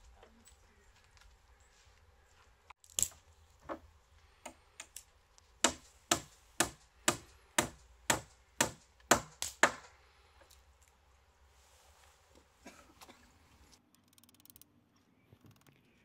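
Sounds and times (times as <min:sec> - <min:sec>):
sharp knocks on wood: 0:05.6 - 0:09.9.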